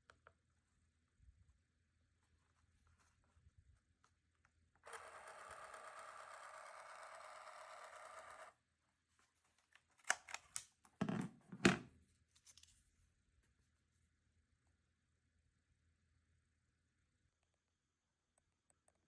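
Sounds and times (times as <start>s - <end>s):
small motor buzzing: 4.8s - 8.6s.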